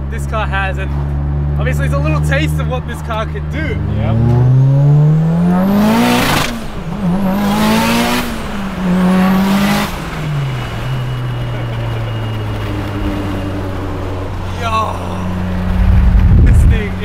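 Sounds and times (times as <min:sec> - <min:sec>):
turbocharged engine pulling hard: 0:00.0 - 0:17.0
turbo rushing noise: 0:15.4 - 0:17.0.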